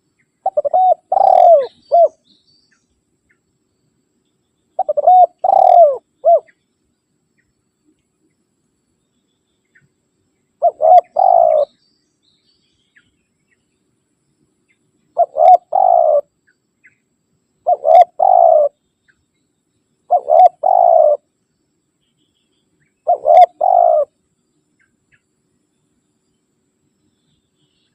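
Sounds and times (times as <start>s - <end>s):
dove cooing: 0.4s - 2.2s, 4.8s - 6.5s, 10.6s - 11.7s, 15.2s - 16.3s, 17.6s - 18.8s, 20.1s - 21.3s, 23.0s - 24.2s.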